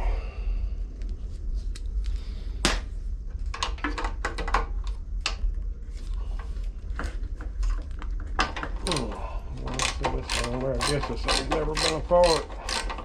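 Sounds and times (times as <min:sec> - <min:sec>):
steady low hum: 0:00.0 - 0:13.0
hand tools clinking on metal: 0:08.9 - 0:13.0.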